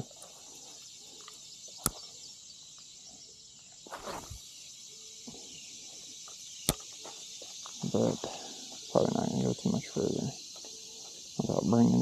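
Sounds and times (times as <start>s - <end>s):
insects buzzing: 0.0s - 12.0s
sharp click: 1.2s - 2.0s, 6.6s - 6.9s
brief rustle: 3.9s - 4.4s.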